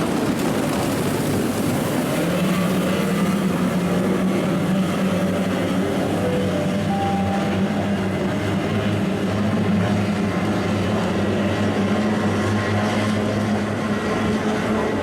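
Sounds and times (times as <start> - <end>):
wind rush on microphone: 0.0 - 6.7
outboard engines droning: 0.0 - 15.0.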